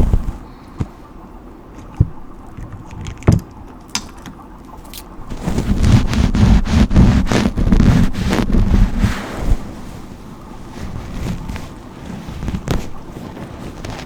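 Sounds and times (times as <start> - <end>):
rustling brush strokes: 4.8 - 14.0.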